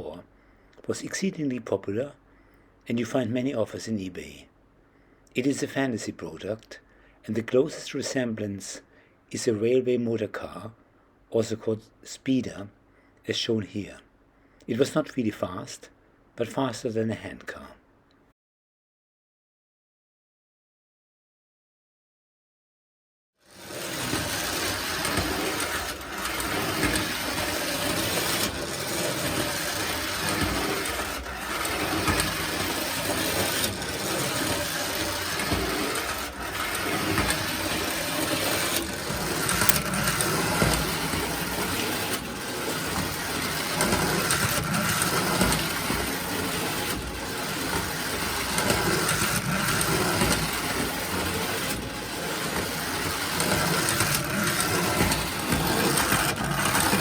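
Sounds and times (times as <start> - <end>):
toy train motor running: 23.5 - 57.0.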